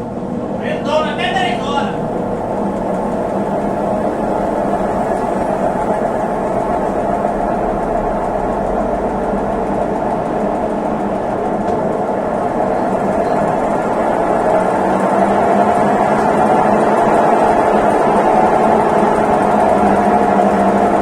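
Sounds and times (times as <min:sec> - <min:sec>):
washing machine whirring: 0:00.0 - 0:21.0.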